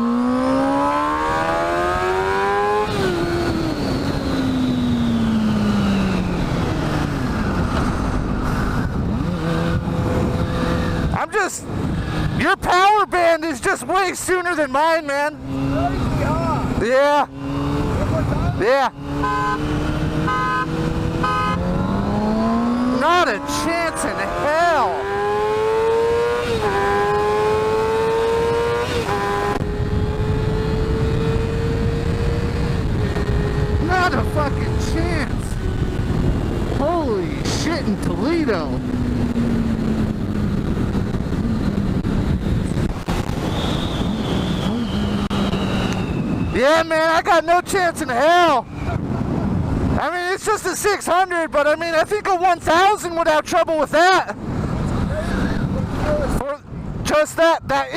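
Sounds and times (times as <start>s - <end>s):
motorcycle engine accelerating: 0.0s - 12.4s, 15.0s - 47.2s
wind buffeting microphone: 2.9s - 12.7s, 28.4s - 46.6s, 48.4s - 50.0s, 54.3s - 57.9s.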